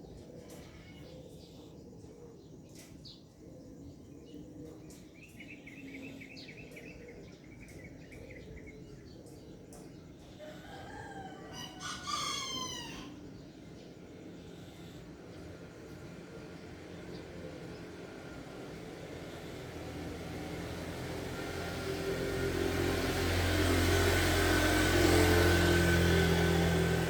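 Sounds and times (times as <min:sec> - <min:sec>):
rooster crowing: 0:10.4 - 0:13.3.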